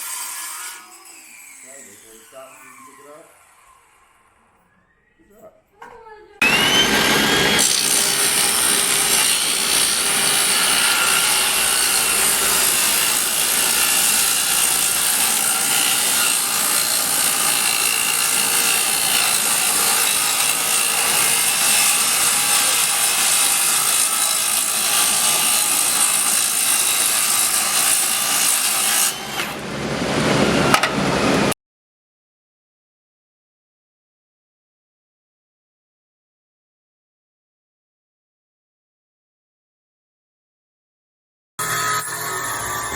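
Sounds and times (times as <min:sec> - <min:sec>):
circular saw cutting wood: 0:00.0 - 0:04.4, 0:06.4 - 0:31.6, 0:41.6 - 0:42.9.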